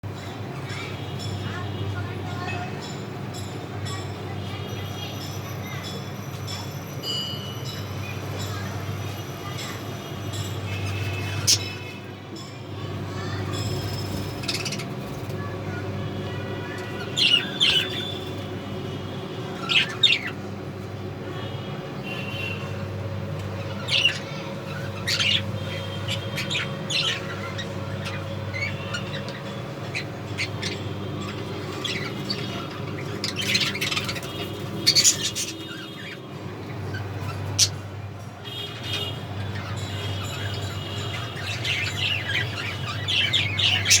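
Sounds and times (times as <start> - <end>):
parrots chirping: 10.4 - 12.1, 13.1 - 15.5, 16.6 - 20.5, 23.6 - 44.0.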